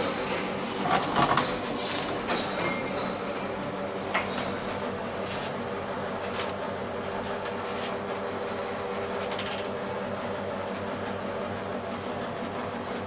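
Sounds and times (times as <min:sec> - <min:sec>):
elevator humming: 0:00.0 - 0:13.0.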